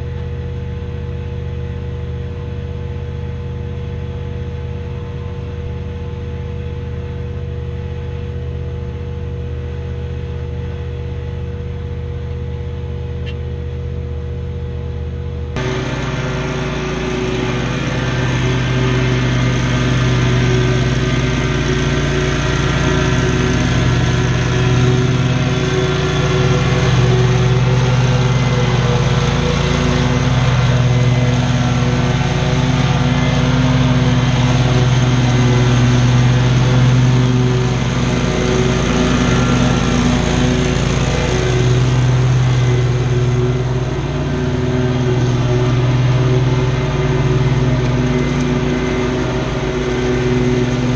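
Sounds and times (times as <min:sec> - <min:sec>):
small petrol engine running: 0:15.5 - 0:50.9.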